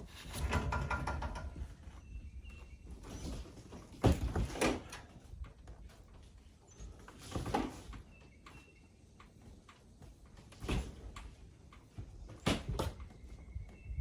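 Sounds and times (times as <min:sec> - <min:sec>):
knocks and scraping thuds: 0:02.8 - 0:06.2, 0:10.0 - 0:13.8.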